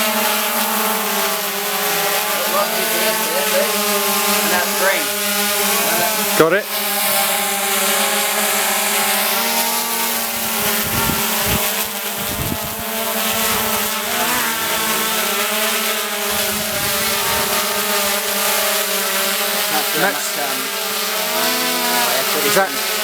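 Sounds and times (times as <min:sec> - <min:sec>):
drone propellers buzzing: 0:00.0 - 0:23.0
wind buffeting microphone: 0:10.4 - 0:15.0, 0:16.3 - 0:17.8.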